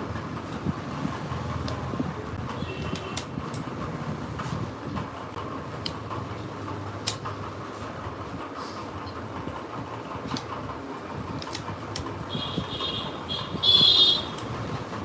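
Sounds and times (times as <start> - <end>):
steady background noise: 0.0 - 15.0
sharp metallic clicks: 2.8 - 3.7, 7.0 - 7.4, 11.4 - 12.1, 14.1 - 14.6.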